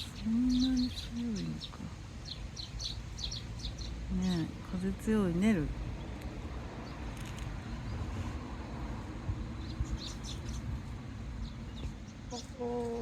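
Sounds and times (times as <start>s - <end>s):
wind rumbling on microphone: 5.7s - 12.3s
faint high bird chirps: 11.6s - 13.0s.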